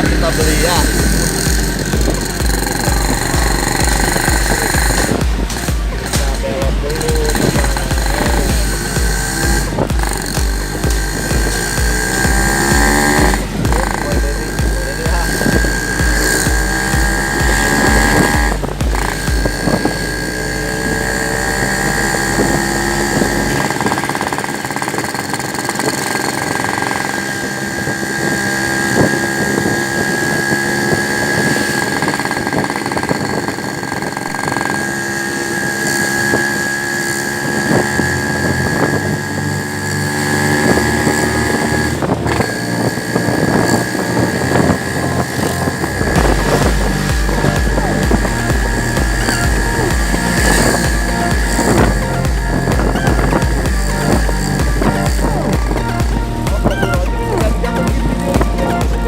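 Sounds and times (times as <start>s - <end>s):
road noise: 0.0s - 59.0s
vehicle engine running: 0.0s - 59.0s.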